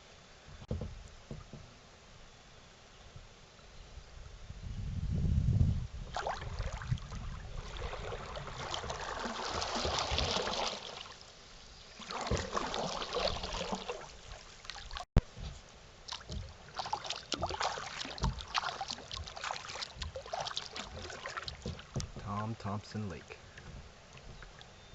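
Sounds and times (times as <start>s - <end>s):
water splashing and trickling: 6.0s - 24.9s
kayak paddle strokes: 6.1s - 24.9s.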